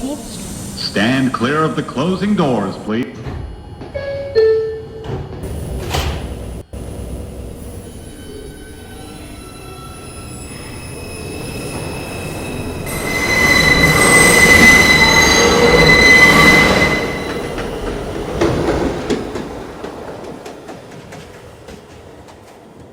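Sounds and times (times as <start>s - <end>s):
subway train pulling out: 0.0s - 22.9s
train wheels squealing: 7.5s - 19.5s
wheels clicking over rail joints: 10.4s - 22.9s.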